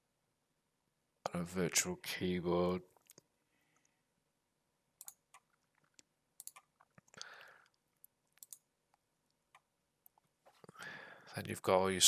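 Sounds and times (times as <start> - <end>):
computer mouse clicks: 5.0 - 8.7.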